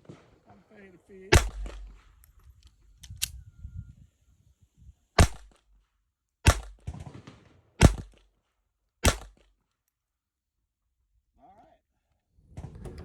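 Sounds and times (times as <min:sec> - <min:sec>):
pistol shots: 0:01.3 - 0:02.2, 0:05.2 - 0:05.6, 0:06.4 - 0:08.2, 0:09.0 - 0:09.4
gun handling noise: 0:01.3 - 0:03.4.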